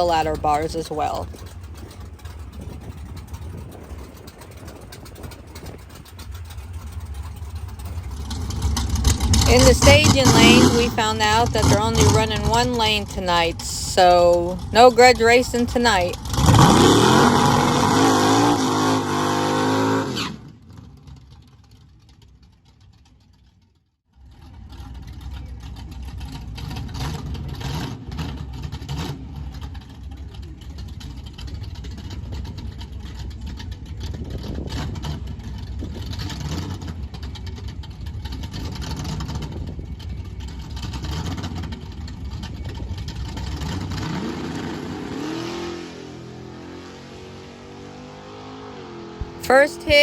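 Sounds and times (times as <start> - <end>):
vee eight engine revving: 7.9 - 20.4.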